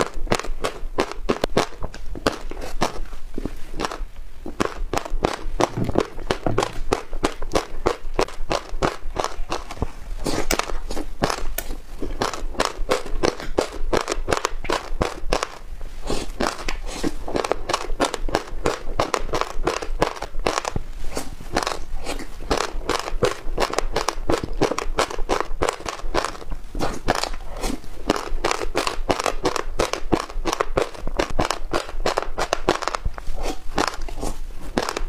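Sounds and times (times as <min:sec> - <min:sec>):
crunchy chewing: 0:00.0 - 0:35.0.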